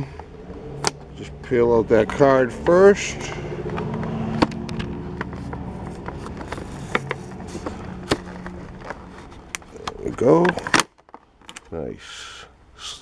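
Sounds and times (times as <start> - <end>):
steady low hum: 0.0 - 10.8
sharp plastic snaps: 0.2 - 1.1, 3.6 - 11.7
plastic clicks and crackles: 3.6 - 11.8.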